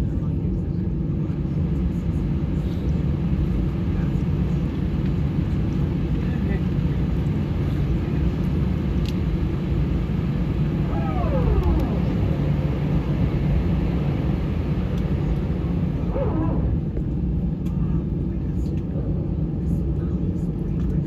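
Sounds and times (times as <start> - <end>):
aircraft cabin rumble: 0.1 - 17.2
brief falling tone: 10.0 - 16.5.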